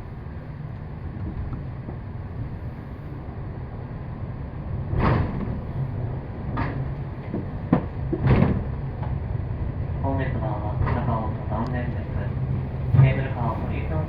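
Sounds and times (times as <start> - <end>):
cable car rumbling: 0.0 - 14.0.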